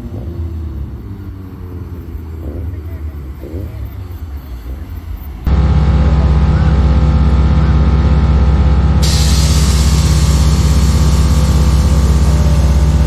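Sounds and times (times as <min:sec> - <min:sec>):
low engine rumble: 0:00.0 - 0:13.0
car engine idling loudly: 0:05.5 - 0:13.0
hiss: 0:09.0 - 0:13.0.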